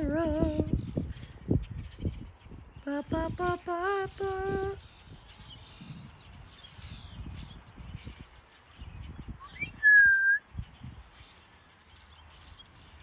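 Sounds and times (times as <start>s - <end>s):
clear whistled note: 9.5s - 10.4s.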